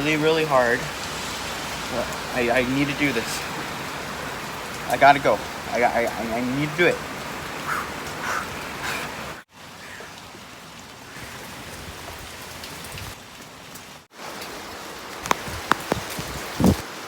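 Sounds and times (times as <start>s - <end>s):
heavy rain falling: 0.0s - 17.0s
sharp clicks and knocks: 15.2s - 16.4s.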